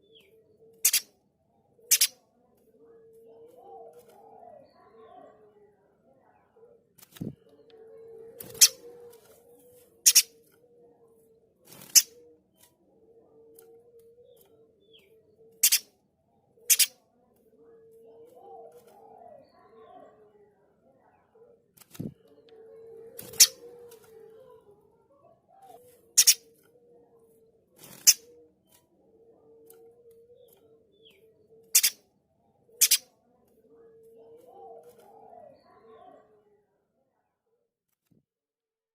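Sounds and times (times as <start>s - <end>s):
bird harsh rasping calls: 0.8s - 1.1s, 1.9s - 2.2s, 10.0s - 10.4s, 15.6s - 15.9s, 16.7s - 17.0s, 26.1s - 26.5s, 31.7s - 32.0s, 32.8s - 33.1s.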